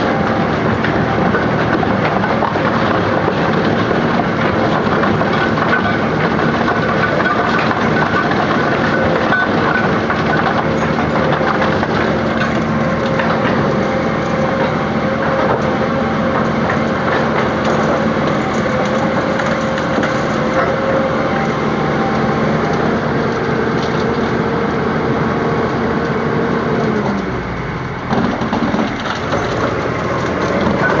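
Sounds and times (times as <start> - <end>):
impact crusher machine hum: 0.0 - 31.0
concrete cracking and crunching: 0.1 - 21.7, 28.1 - 31.0.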